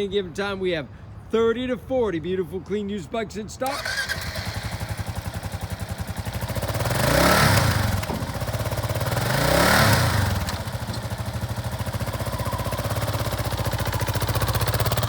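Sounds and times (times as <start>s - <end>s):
motorcycle engine idling and revving: 3.6s - 15.0s.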